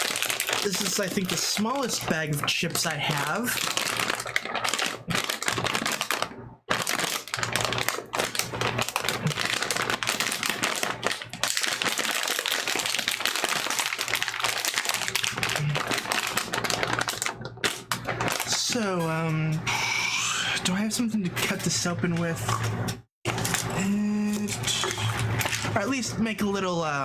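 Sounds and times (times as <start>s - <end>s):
chip bag crinkling: 0.0s - 19.2s, 23.3s - 25.9s.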